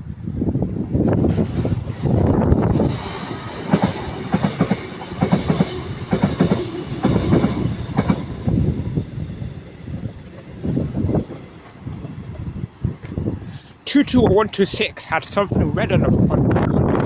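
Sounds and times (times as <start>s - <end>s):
train running rumble: 0.0s - 17.0s
train wheels clicking over joints: 2.8s - 8.5s.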